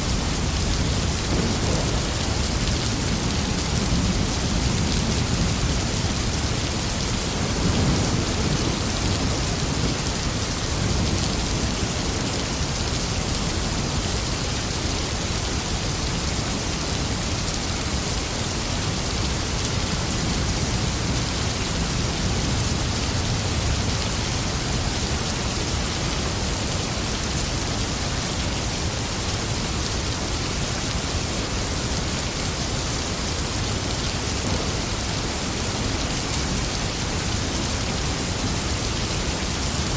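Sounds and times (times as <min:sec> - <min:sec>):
rain pouring: 0:00.0 - 0:39.9
thunder rumbling: 0:00.3 - 0:05.8.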